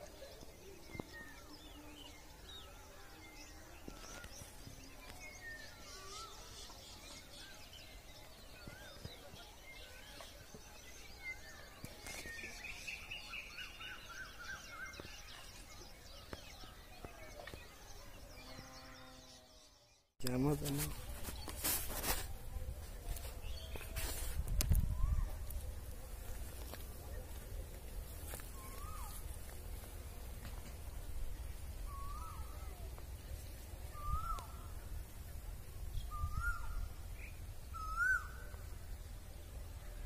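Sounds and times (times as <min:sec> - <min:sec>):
small birds chirping and warbling: 0:00.0 - 0:40.0.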